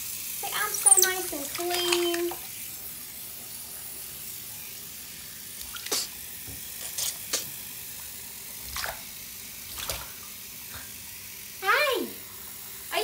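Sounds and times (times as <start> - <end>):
water hissing: 0.0 - 13.0
water splashing: 0.4 - 2.7, 5.6 - 6.2, 8.6 - 10.4.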